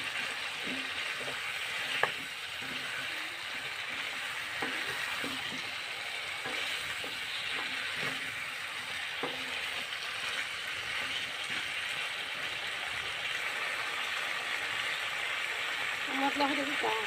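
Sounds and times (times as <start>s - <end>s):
wooden spoon scraping a pan: 0.0s - 12.5s
food sizzling in a pan: 0.0s - 17.0s
spoon knocking against pan: 0.6s - 2.9s, 9.1s - 9.6s.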